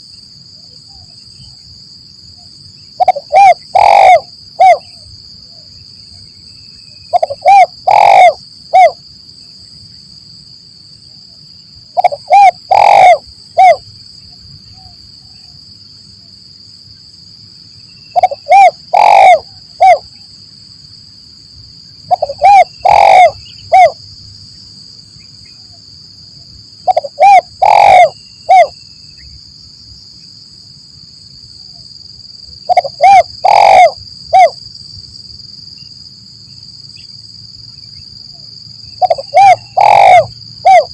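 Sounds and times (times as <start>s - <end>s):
dove cooing: 3.0s - 5.0s, 7.1s - 9.0s, 12.0s - 13.8s, 18.1s - 20.1s, 22.1s - 24.0s, 26.8s - 28.7s, 32.7s - 34.6s, 39.0s - 40.9s.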